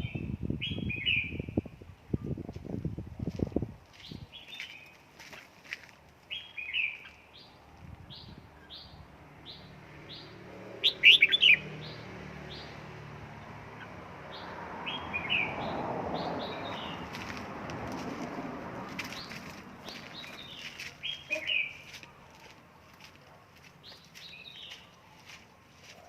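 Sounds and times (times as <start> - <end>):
bird calling high chips: 10.8 - 11.6, 19.1 - 22.0.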